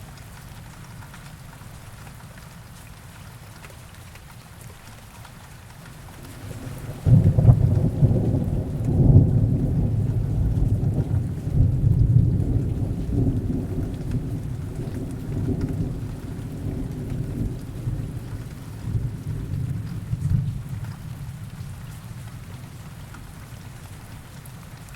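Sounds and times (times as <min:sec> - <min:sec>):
heavy rain: 0:00.0 - 0:24.9
low thunder rumble: 0:06.0 - 0:21.8
thunderclap: 0:06.1 - 0:21.0.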